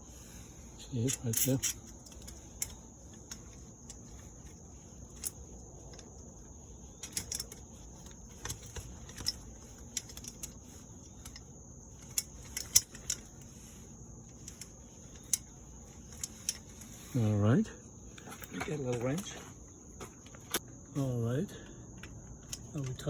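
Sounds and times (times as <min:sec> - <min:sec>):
high insect drone: 0:00.0 - 0:23.0
metal clicks and clinks: 0:00.9 - 0:06.3, 0:06.9 - 0:13.7, 0:14.3 - 0:17.0, 0:22.0 - 0:23.0.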